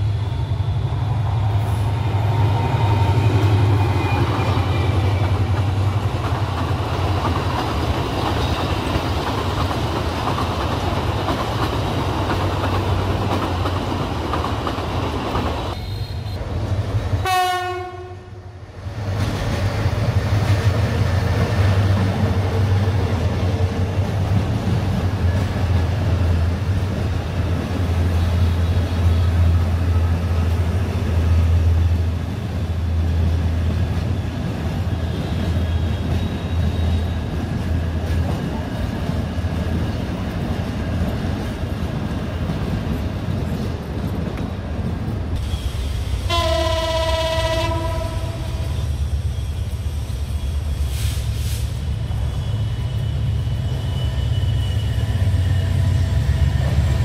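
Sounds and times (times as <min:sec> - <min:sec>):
train engine drone: 0:00.0 - 0:57.0
wheels clattering on rails: 0:03.4 - 0:15.8
train horn: 0:17.2 - 0:18.5, 0:46.2 - 0:48.9.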